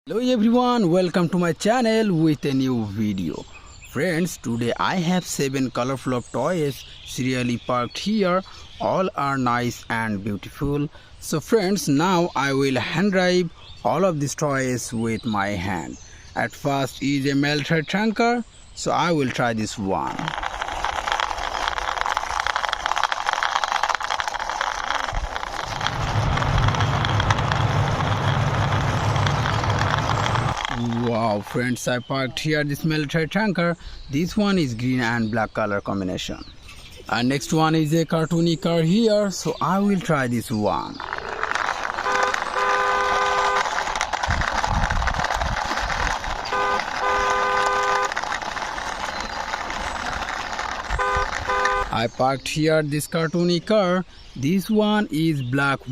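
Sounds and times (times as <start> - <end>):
toy tank wheels clicking and rattling: 19.2 - 32.1, 38.3 - 52.1
horn honking: 41.9 - 43.8, 46.5 - 48.3, 50.8 - 52.0.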